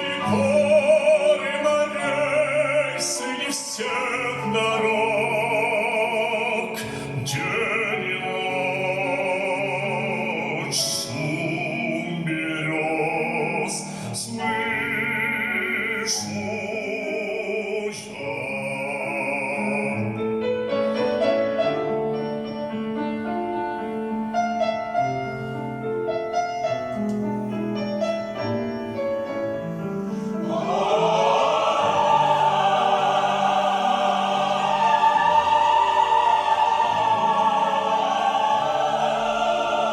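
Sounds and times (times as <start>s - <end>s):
operatic voice singing: 0.0s - 20.2s, 29.6s - 39.9s
piano: 0.0s - 39.9s
choir singing held notes: 28.4s - 39.9s.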